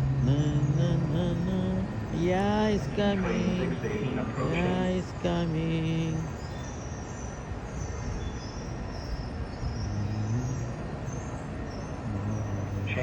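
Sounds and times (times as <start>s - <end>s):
low hum: 0.0s - 6.5s, 9.5s - 13.0s.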